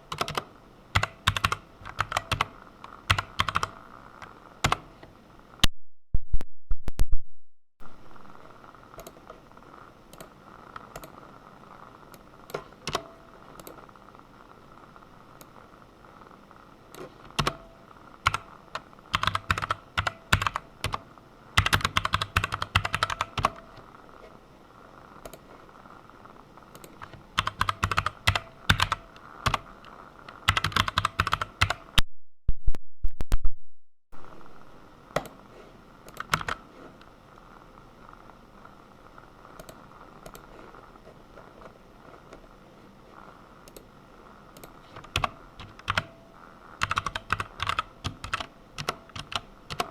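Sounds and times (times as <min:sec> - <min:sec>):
computer keyboard typing: 0:00.1 - 0:03.8, 0:04.6 - 0:04.9, 0:10.1 - 0:11.2, 0:16.9 - 0:23.8, 0:26.7 - 0:32.0, 0:36.1 - 0:36.6, 0:44.6 - 0:46.2, 0:46.8 - 0:49.9.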